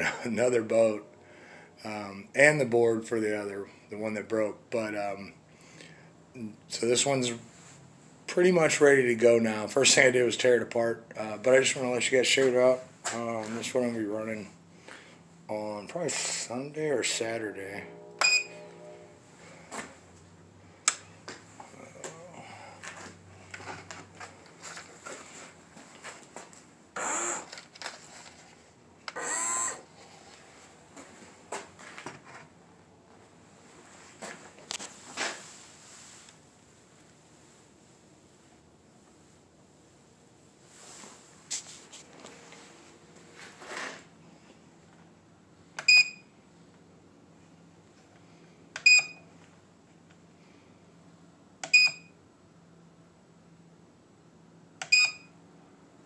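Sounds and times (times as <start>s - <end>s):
short electronic beeps: 17.9s - 19.2s
small electric motor whirring: 27.0s - 27.6s, 29.1s - 29.9s.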